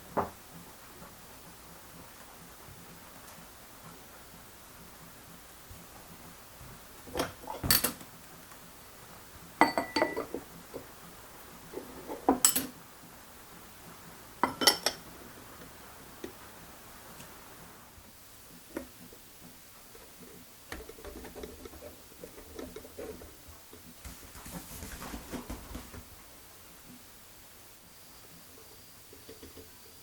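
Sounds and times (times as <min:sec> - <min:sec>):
kitchenware clinking and clattering: 0:07.1 - 0:08.1, 0:09.6 - 0:10.8, 0:11.8 - 0:12.8, 0:14.4 - 0:15.1.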